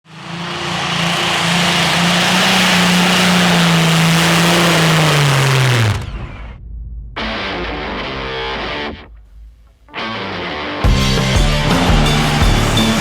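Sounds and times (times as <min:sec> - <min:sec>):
tractor engine at full throttle: 0:00.0 - 0:06.3, 0:11.0 - 0:13.0
low rumble: 0:05.3 - 0:09.9.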